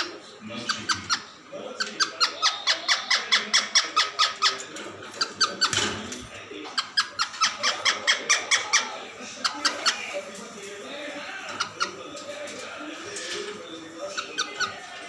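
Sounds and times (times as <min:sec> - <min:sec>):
parrot squeaky chirps: 0:00.6 - 0:04.6, 0:06.7 - 0:10.2, 0:14.1 - 0:14.8.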